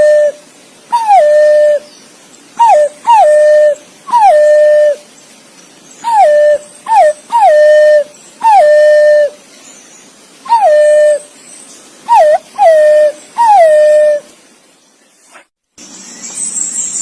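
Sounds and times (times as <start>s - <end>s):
pigeon whistled calls: 0.0s - 1.8s, 2.6s - 5.0s, 6.0s - 9.4s, 10.5s - 11.3s, 12.1s - 14.2s.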